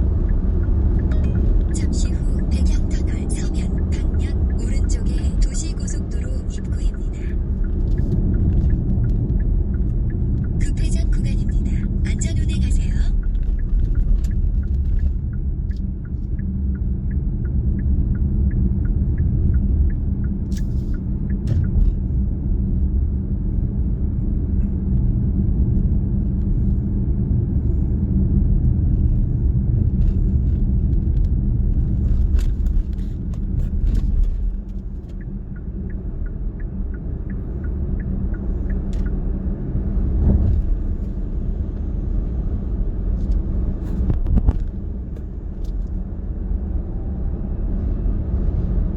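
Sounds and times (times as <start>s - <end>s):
car road and engine rumble: 0.0s - 48.9s.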